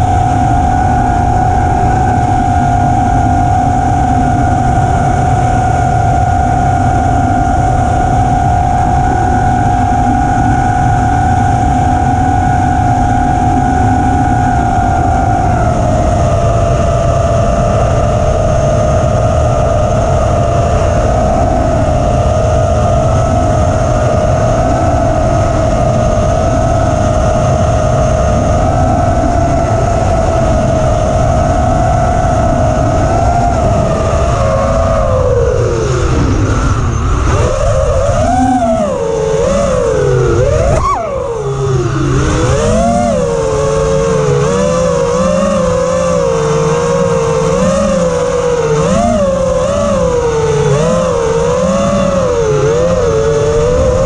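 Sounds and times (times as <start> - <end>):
drone motors whining: 0.0 - 54.0
wind rumble: 0.0 - 54.0.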